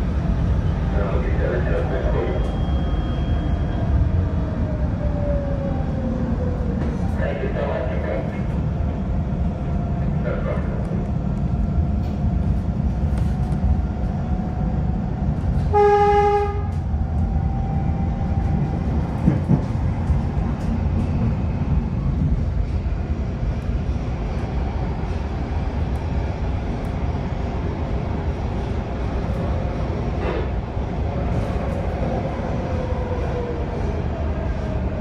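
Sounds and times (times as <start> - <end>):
train rumbling on rails: 0.0 - 35.0
train horn blast: 15.7 - 16.8.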